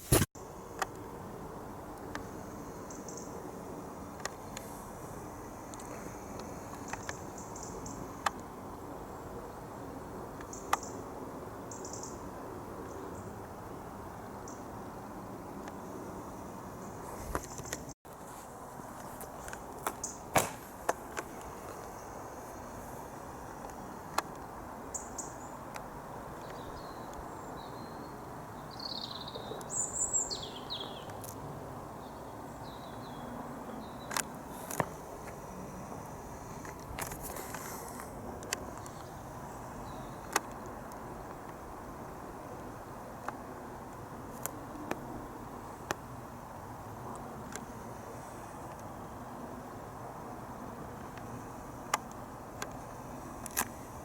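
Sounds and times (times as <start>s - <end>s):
outdoor background hum: 0.0s - 54.0s
small birds chirping: 5.5s - 9.7s, 18.9s - 25.7s, 26.3s - 31.2s, 35.6s - 40.8s.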